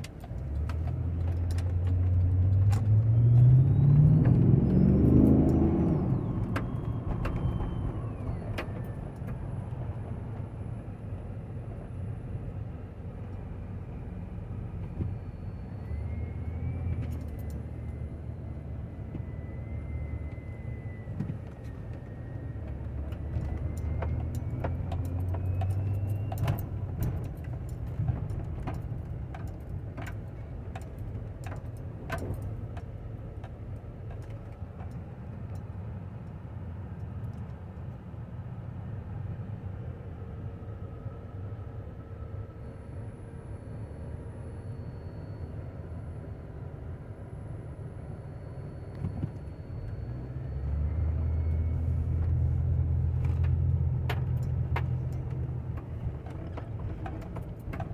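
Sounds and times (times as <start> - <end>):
motor vehicle rumbling: 0.0 - 57.9.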